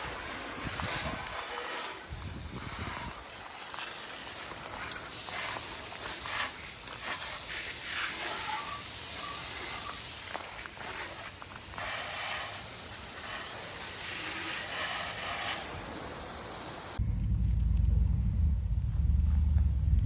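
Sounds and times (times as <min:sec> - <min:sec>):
wind noise hissing: 0:00.0 - 0:17.0
low gusting rumbles: 0:17.0 - 0:20.0.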